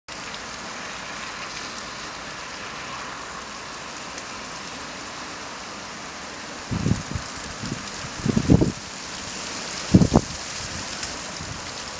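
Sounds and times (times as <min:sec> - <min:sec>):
steady rain hiss: 0:00.1 - 0:11.9
wind buffeting microphone: 0:06.7 - 0:08.9, 0:09.8 - 0:11.8.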